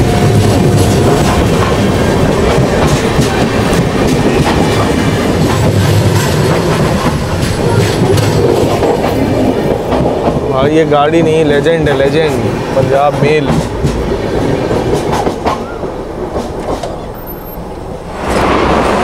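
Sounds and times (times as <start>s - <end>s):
train coaches rumbling at speed: 0.0s - 19.0s
wheels clacking over rail joints: 0.0s - 19.0s.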